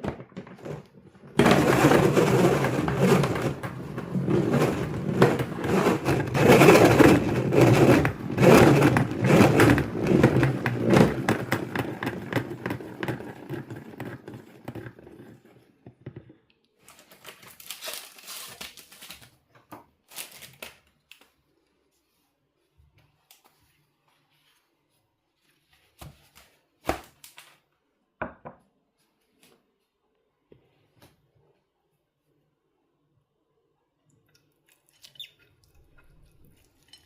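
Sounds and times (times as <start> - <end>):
rustling and crinkling of handling: 0.1 - 27.9.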